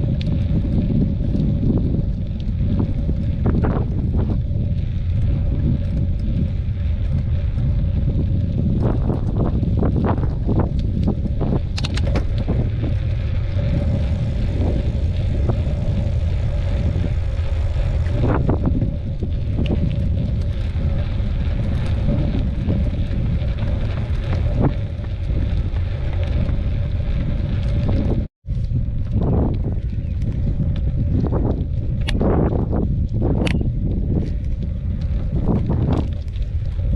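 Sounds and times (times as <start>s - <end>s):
faint steady hum: 0.0s - 36.9s
wind buffeting microphone: 0.0s - 36.9s.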